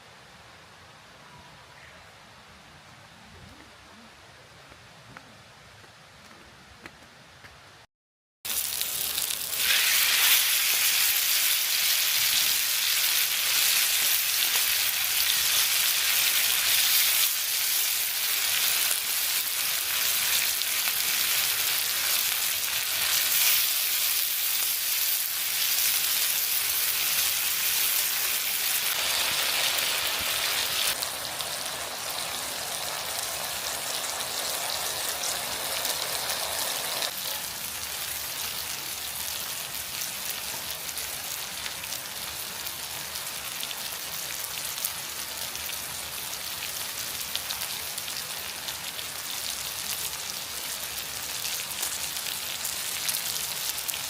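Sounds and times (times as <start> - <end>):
meat sizzling on a grill pan: 8.5 - 40.4, 43.1 - 54.0.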